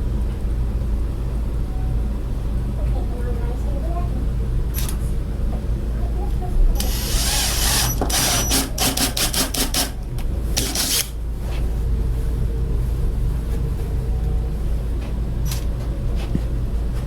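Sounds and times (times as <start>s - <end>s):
power drill whining: 6.8s - 10.0s, 10.6s - 11.1s.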